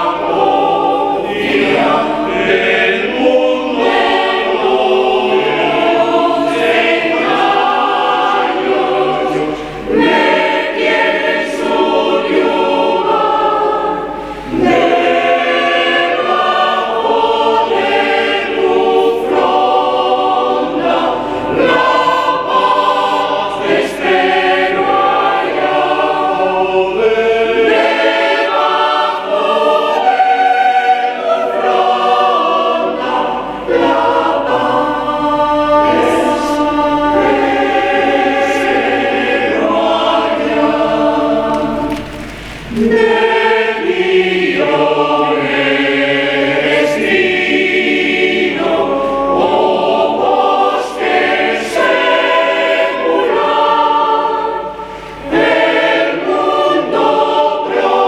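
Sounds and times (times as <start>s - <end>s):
mixed choir singing: 0.0s - 58.0s.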